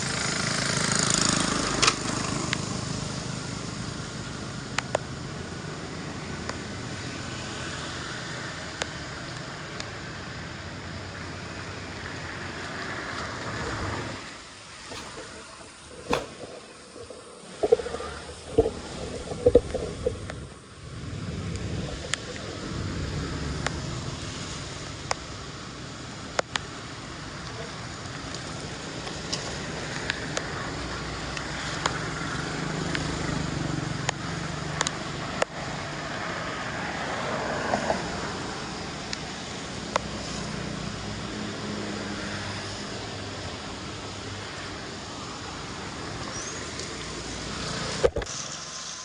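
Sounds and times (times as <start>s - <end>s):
floodwater rushing into drain: 14.9s - 17.2s
sharp clicks and knocks: 14.9s - 17.2s.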